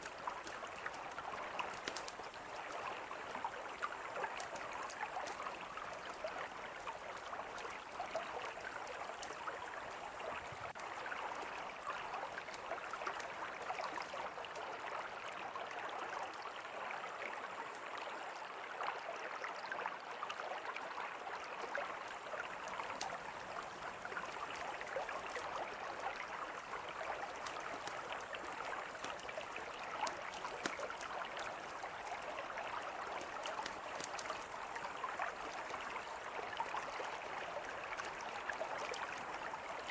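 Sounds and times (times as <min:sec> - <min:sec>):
campfire crackling: 0:00.0 - 0:06.2, 0:22.2 - 0:32.3, 0:33.0 - 0:36.7
river flowing: 0:00.0 - 0:39.9.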